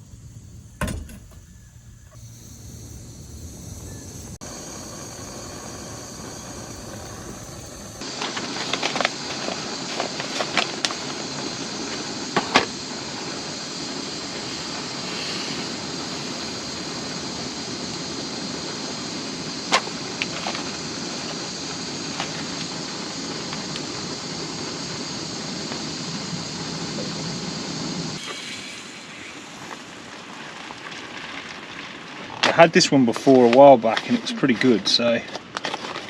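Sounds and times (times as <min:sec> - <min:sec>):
gas stove burner hissing: 0:00.0 - 0:31.1.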